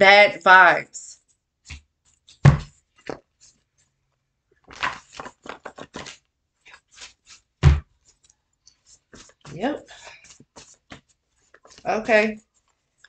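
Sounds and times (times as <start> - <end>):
dull thump on table: 2.4 - 2.7, 7.6 - 7.8.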